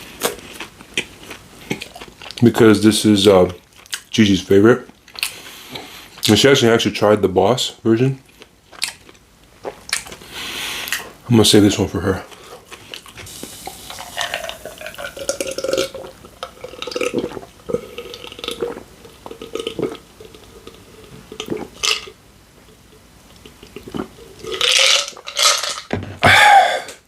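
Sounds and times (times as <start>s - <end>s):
person gulping drink: 12.7s - 27.0s
breathy gasp or burp: 26.2s - 27.0s.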